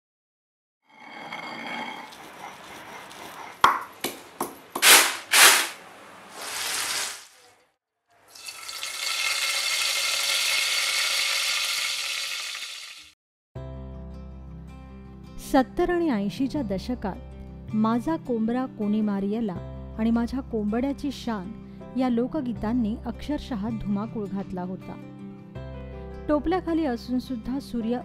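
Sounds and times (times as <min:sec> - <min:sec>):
food sizzling in oil: 0:04.8 - 0:07.4, 0:08.3 - 0:13.2
loud crunches: 0:04.8 - 0:07.4
rustling trickle: 0:05.2 - 0:07.4.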